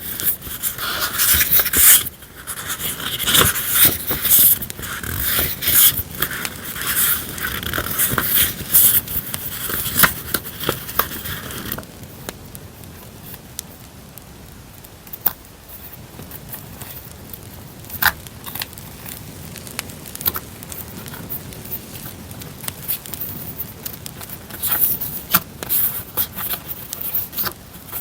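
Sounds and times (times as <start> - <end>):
paper rustling and scraping: 0.0 - 11.8, 20.3 - 28.0
campfire crackling and popping: 0.0 - 28.0.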